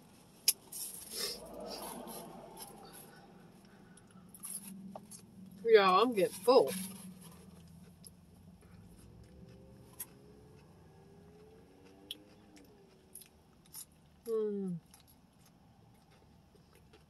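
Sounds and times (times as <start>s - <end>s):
chewing and crunching food: 6.2s - 17.0s.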